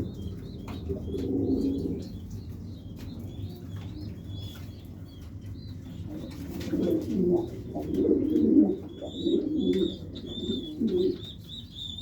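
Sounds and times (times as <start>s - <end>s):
pigeon cooing: 0.8s - 2.2s, 6.1s - 12.0s.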